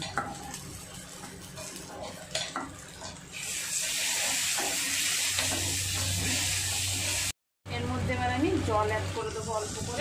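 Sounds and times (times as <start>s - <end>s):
spatula scraping pan: 0.0s - 3.2s
loud frying sizzle: 0.0s - 10.0s.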